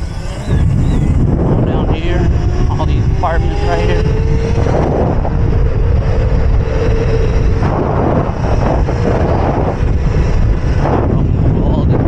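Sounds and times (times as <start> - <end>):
electric motor whine: 0.0 - 12.0
wind buffeting microphone: 0.0 - 12.0.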